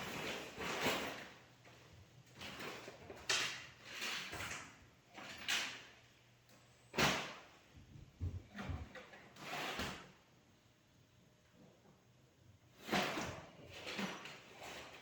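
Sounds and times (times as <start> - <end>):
tools and drawers scraping: 9.3 - 10.1, 12.8 - 15.0.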